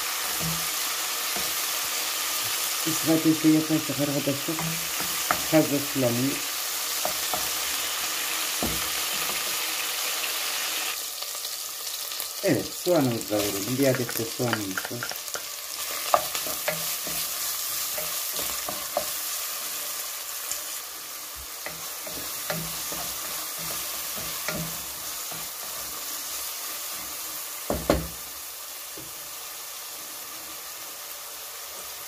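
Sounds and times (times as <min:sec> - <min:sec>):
onion and beef sizzling in oil: 0:00.0 - 0:32.0
wooden spoon knocking on pot: 0:14.0 - 0:15.5, 0:27.7 - 0:28.2.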